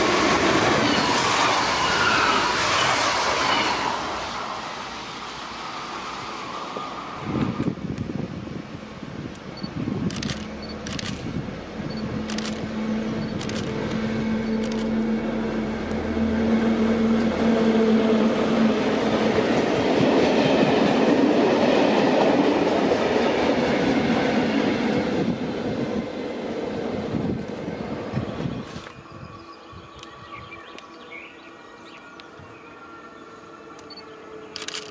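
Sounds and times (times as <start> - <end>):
train wheels rumbling on rail: 0.0 - 29.1
train hum: 0.0 - 34.9
sharp clicks: 9.3 - 11.3, 12.2 - 14.9, 34.6 - 34.9.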